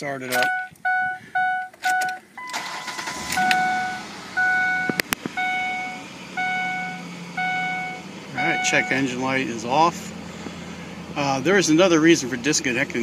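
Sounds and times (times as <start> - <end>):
car engine starting and idling: 0.0 - 13.0
dashboard warning chime: 0.3 - 9.1
sharp clicks: 4.9 - 5.4.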